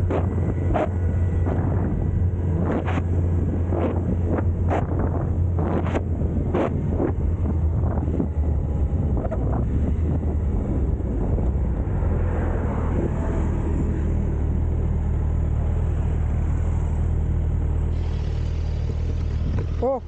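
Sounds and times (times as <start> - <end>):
wind rushing over microphone: 0.0 - 15.0
low motorcycle rumble: 0.0 - 20.0.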